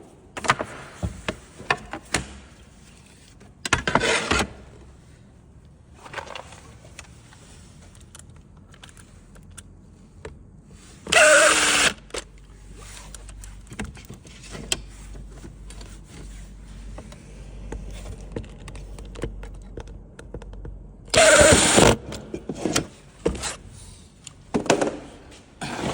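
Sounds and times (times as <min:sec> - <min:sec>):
cordless drill driving screws: 0:11.1 - 0:12.0, 0:21.1 - 0:22.0
handling clicks and knocks: 0:16.9 - 0:21.2.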